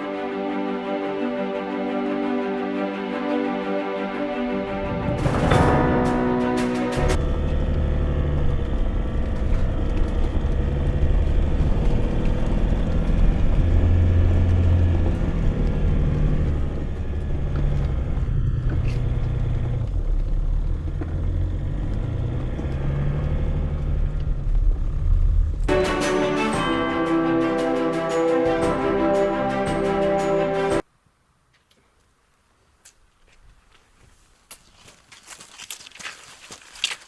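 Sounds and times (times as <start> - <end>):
car engine and road noise: 4.1 - 30.9.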